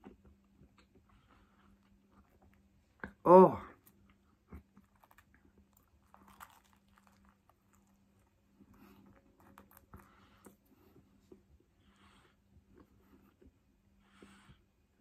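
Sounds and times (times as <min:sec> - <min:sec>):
faint chewing and biting: 0:00.0 - 0:11.5.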